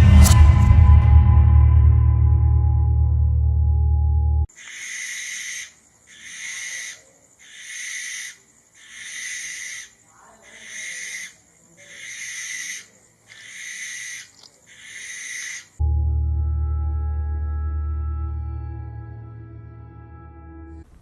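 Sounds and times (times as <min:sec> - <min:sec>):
bird harsh hissing screech: 0:04.6 - 0:15.8.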